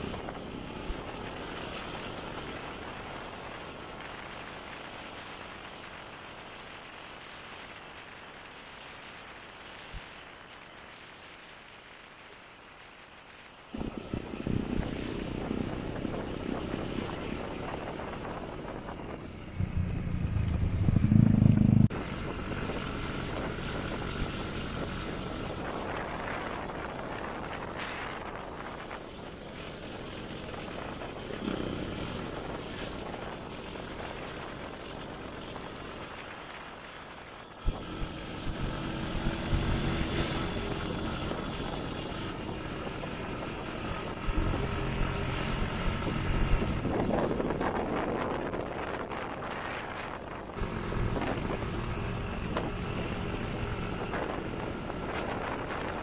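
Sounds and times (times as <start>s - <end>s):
motorcycle engine running: 13.8s - 27.1s, 37.6s - 49.3s, 50.4s - 56.0s.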